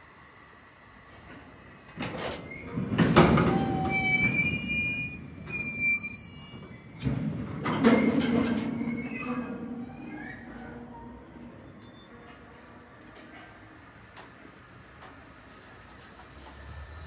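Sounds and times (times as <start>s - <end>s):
train wheels rumbling: 1.1s - 17.0s
high wheel squeal: 2.4s - 13.4s.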